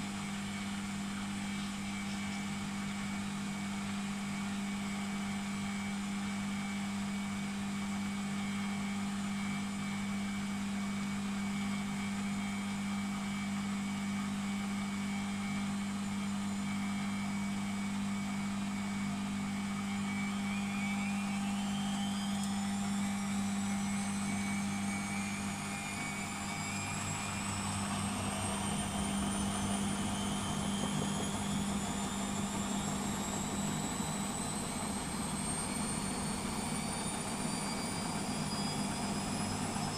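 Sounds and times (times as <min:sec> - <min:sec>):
washing machine humming: 0:00.0 - 0:39.9
rising motor whine: 0:20.0 - 0:39.9.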